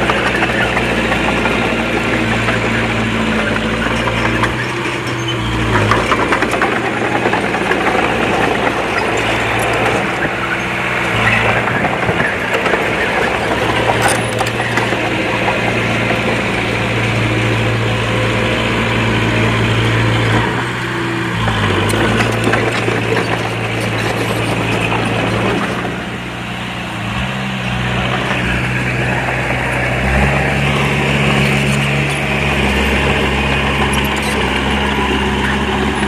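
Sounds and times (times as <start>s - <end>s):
machine clatter: 0.0s - 26.2s
bulldozer diesel engine running: 0.0s - 36.0s.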